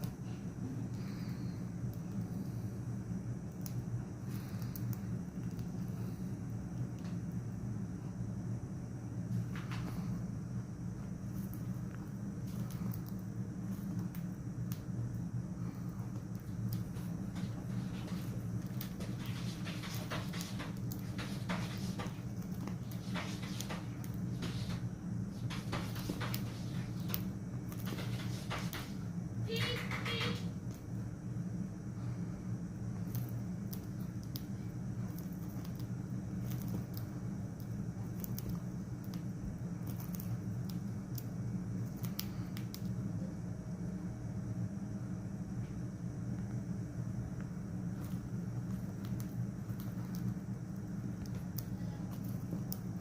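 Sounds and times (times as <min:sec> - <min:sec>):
steady low hum: 0:00.0 - 0:53.0
bird beak cracking seeds: 0:03.4 - 0:06.2, 0:11.3 - 0:30.9, 0:33.0 - 0:43.0, 0:47.9 - 0:53.0.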